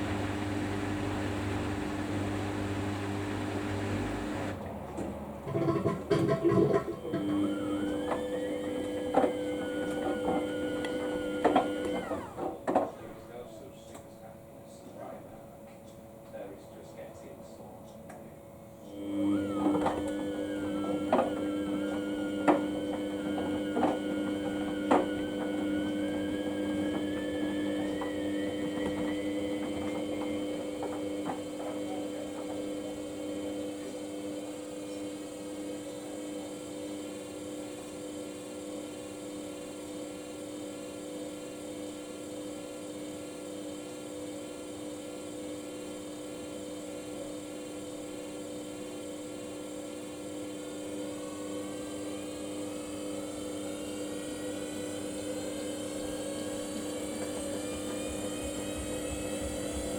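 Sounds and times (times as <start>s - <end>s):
washing machine running: 0.0s - 14.7s, 18.4s - 59.9s
rising whine of spinning drum: 19.6s - 31.1s, 50.7s - 59.9s.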